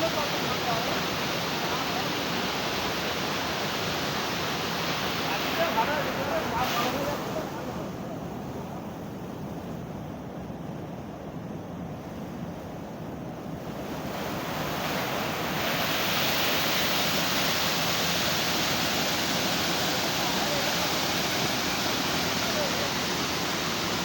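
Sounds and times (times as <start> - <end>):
steady rushing noise: 12.3 - 24.0.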